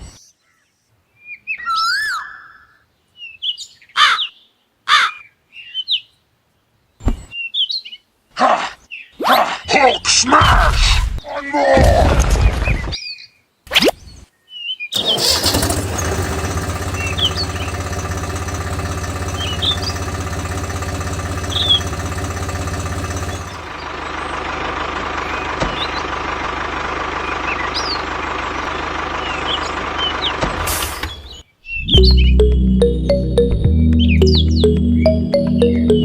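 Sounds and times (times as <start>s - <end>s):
small tractor motor running: 15.0s - 30.8s
birds chirping: 16.1s - 26.2s, 27.1s - 36.0s.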